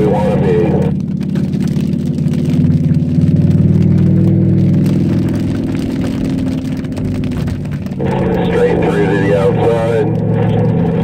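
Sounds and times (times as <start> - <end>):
car engine running under load: 0.0 - 11.0.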